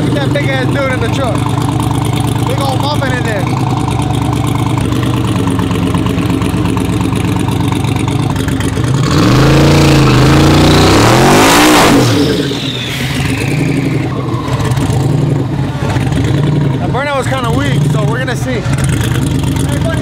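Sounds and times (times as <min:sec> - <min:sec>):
truck engine idling and revving: 0:00.0 - 0:20.0.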